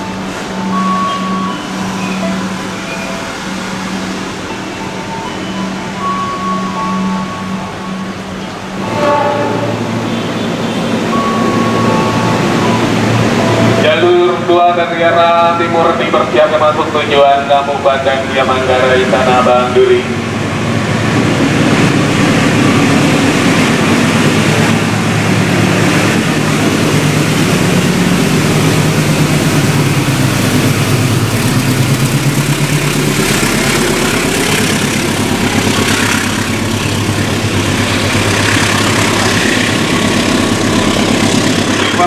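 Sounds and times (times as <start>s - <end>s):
train motor drone: 0.0s - 14.1s, 20.2s - 42.0s
train rumbling: 0.0s - 42.0s.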